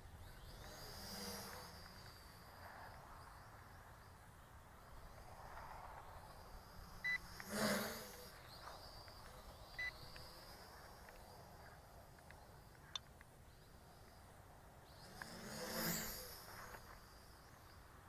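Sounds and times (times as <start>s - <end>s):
faint background hiss: 0.0s - 18.0s
short electronic beeps: 9.7s - 10.0s.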